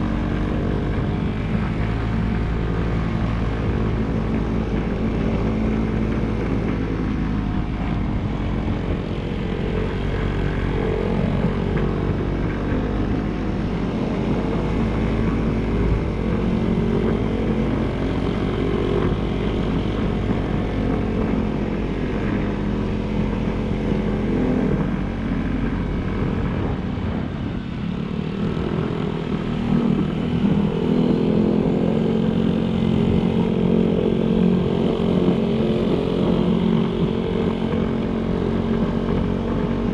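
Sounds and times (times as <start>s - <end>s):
small motorcycle engine running: 0.0s - 39.9s
wind noise: 0.0s - 39.9s.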